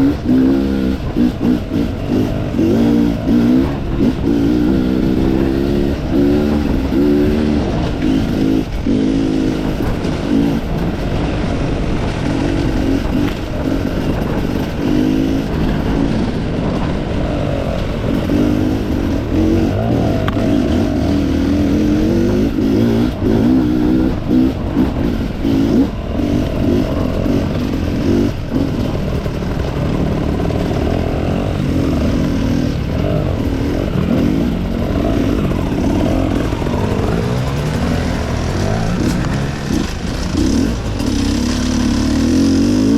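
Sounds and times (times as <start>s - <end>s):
knocks and clatter from motorcycle: 0.0s - 42.9s
motorcycle engine revving: 0.0s - 42.9s.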